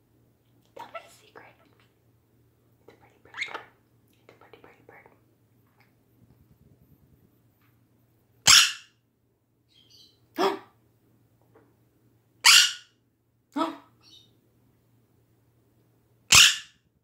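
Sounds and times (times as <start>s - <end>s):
parrot bark-like calls: 8.4s - 9.0s, 12.4s - 13.0s, 16.3s - 16.8s.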